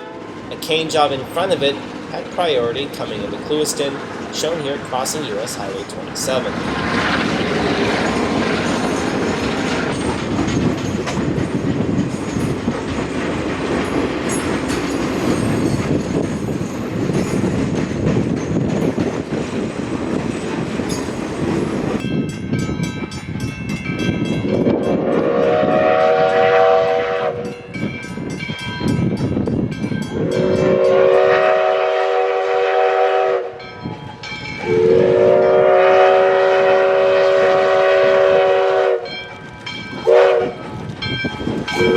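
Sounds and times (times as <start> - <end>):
train wheels on rails: 0.0 - 41.9
grade-crossing bell ringing: 8.0 - 13.2, 13.8 - 19.0, 20.3 - 26.3, 27.4 - 31.1, 33.6 - 35.1, 39.0 - 41.9
train horn blasts: 25.0 - 27.6, 30.2 - 33.6, 34.6 - 39.2, 40.0 - 40.6.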